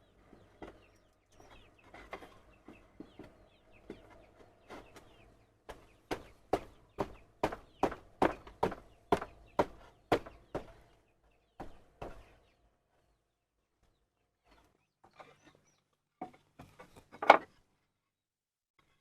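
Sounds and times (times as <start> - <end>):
hand tool striking wood: 5.7 - 10.8.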